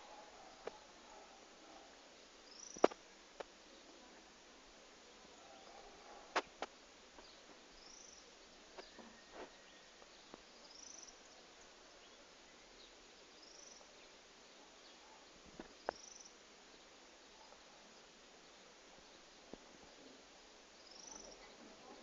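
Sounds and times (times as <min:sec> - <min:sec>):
faint high chirp: 0:20.8 - 0:21.6.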